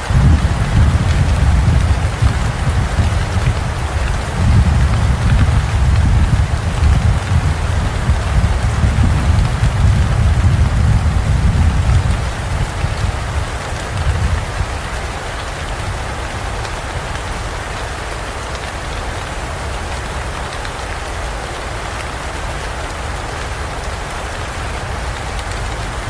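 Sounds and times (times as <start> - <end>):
low thunder rumble: 0.0 - 15.0
heavy rain falling in forest: 0.0 - 26.0.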